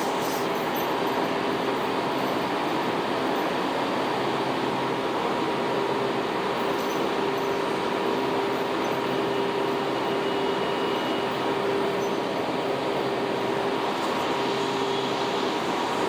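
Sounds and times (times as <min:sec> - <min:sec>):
railcar equipment humming: 0:00.0 - 0:16.0.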